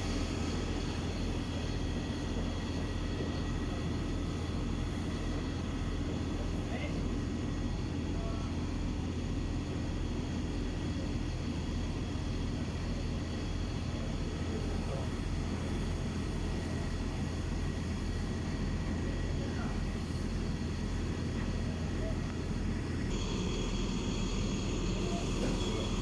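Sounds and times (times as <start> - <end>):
large engine droning: 0.0 - 26.0.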